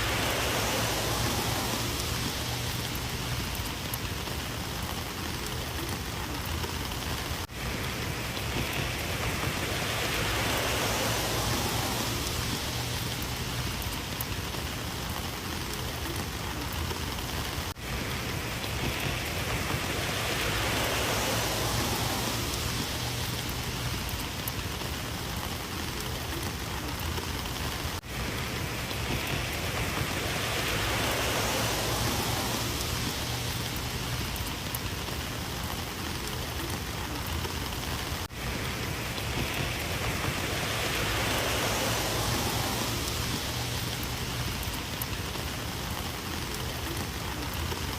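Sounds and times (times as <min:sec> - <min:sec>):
rain pattering on surfaces: 0:00.0 - 0:47.9.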